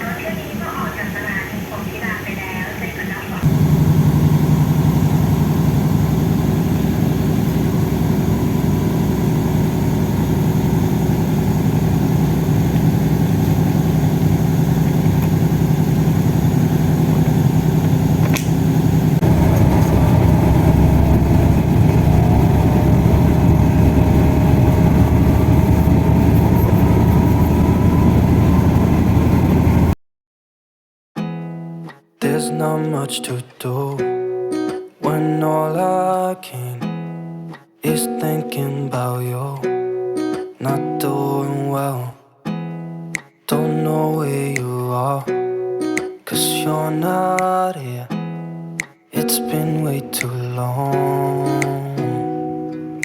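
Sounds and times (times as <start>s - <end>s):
vehicle engine running: 0.1s - 30.0s
faint rising whine: 3.4s - 30.0s.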